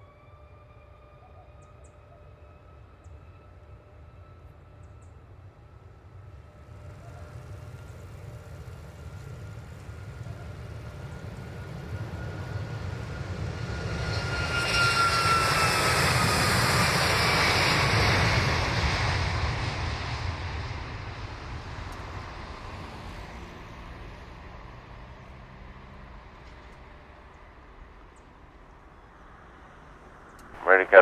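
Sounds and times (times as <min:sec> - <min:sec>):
jet engine rumble passing by: 0:06.2 - 0:31.0
jet engine whine falling in pitch: 0:09.0 - 0:24.6, 0:30.6 - 0:31.0.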